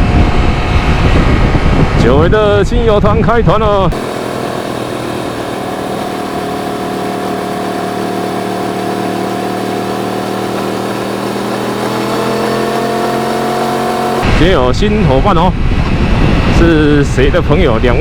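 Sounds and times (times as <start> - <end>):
motorcycle engine running: 0.0 - 2.2, 3.9 - 14.5.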